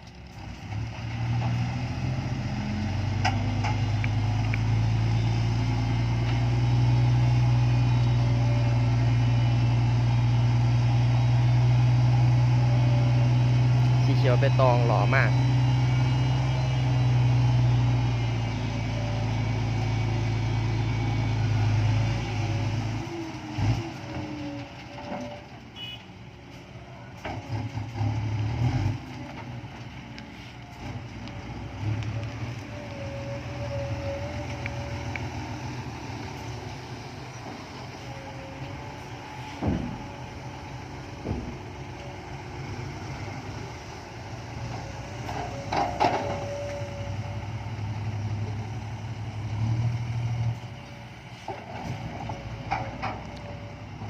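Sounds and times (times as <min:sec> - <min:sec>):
diesel truck engine idling: 0:01.7 - 0:23.5, 0:29.5 - 0:54.0
sharp knocks and clunks: 0:39.5 - 0:40.1, 0:41.2 - 0:41.6.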